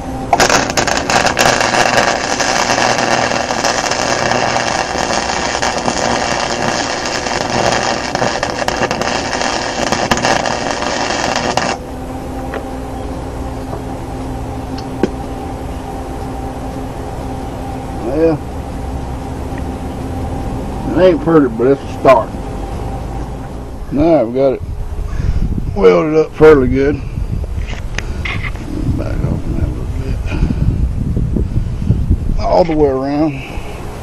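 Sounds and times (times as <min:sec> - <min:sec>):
welding arc crackling: 0:00.0 - 0:12.6
steady low hum: 0:00.0 - 0:34.0.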